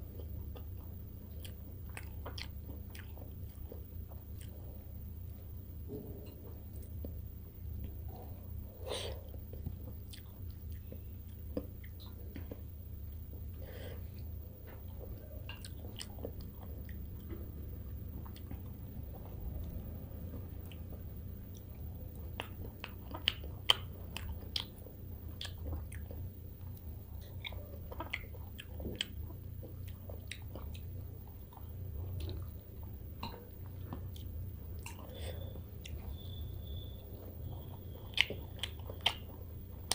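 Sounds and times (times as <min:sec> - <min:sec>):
chewing food: 0:00.0 - 0:39.9
low steady hum: 0:00.0 - 0:39.9
wet mouth clicks: 0:21.5 - 0:24.8, 0:37.5 - 0:39.9.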